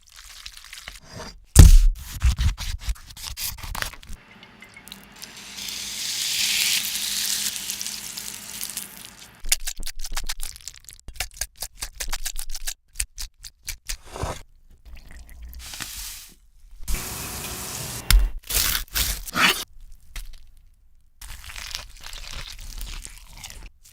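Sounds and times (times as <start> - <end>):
steady hiss: 5.1 - 9.4
crunching food: 5.2 - 11.2, 21.2 - 23.9.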